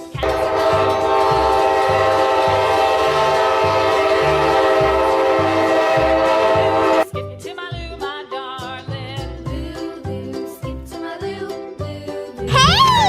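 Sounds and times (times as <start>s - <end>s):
children's music beat: 0.0s - 3.3s
train horn blast: 0.2s - 7.1s.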